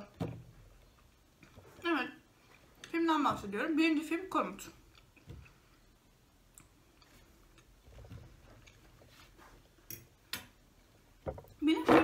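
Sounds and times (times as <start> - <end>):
faint close-up chewing: 6.5 - 9.1.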